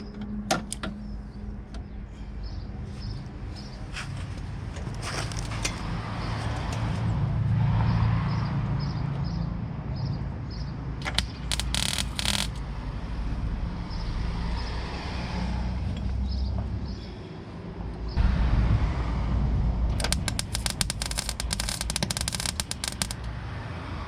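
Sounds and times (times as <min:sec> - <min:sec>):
crackling welding arc: 0:11.0 - 0:12.6, 0:20.0 - 0:23.3
welder clicks: 0:11.0 - 0:12.6, 0:20.0 - 0:23.3
wind rumble on microphone: 0:18.1 - 0:23.2.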